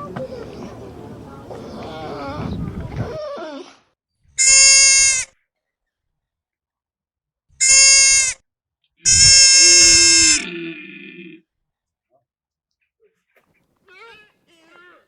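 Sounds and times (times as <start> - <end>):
goat bleating: 4.4 - 5.3, 7.6 - 8.4, 9.0 - 10.5.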